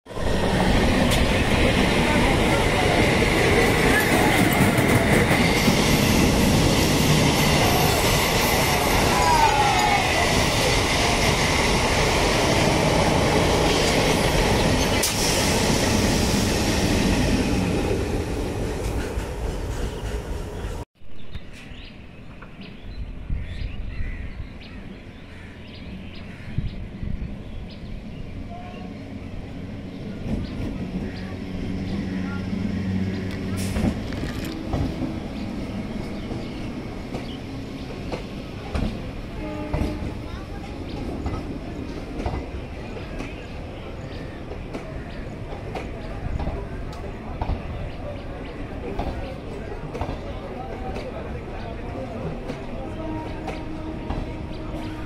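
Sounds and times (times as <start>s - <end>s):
train rumbling past: 0.1s - 20.9s, 25.4s - 55.0s.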